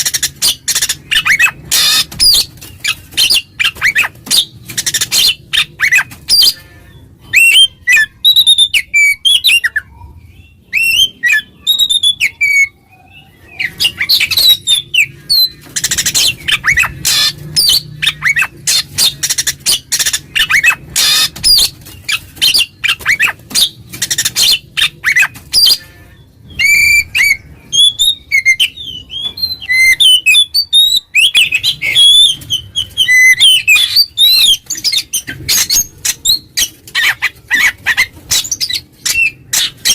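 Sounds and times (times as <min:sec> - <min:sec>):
bird harsh scratchy chattering: 0:00.0 - 0:06.8, 0:13.6 - 0:25.9
bird whistled song phrases: 0:07.2 - 0:18.8.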